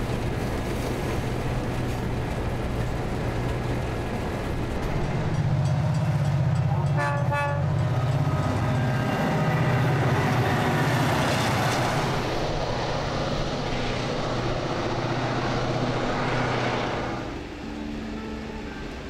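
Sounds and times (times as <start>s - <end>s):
diesel locomotive engine drone: 0.0s - 19.0s
train horn blast: 6.7s - 10.4s.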